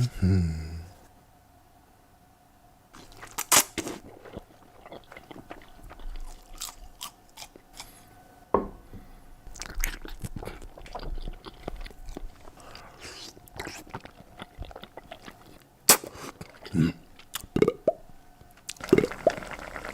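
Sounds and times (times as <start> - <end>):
person chewing and crunching: 3.0 - 8.1, 9.5 - 18.0.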